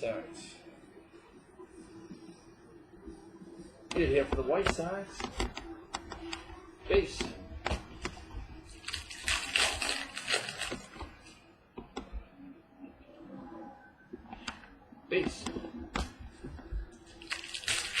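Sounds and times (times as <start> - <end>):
card or wrapper rustle: 8.7 - 11.0, 17.1 - 18.0.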